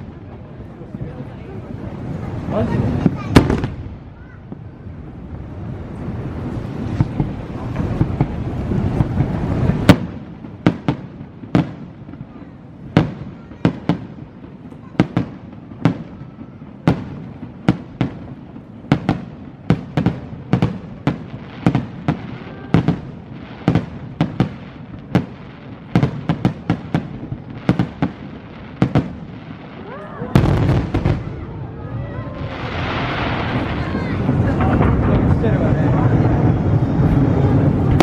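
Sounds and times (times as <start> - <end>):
fireworks bursting: 0.0 - 38.0
low rumbling: 15.5 - 38.0.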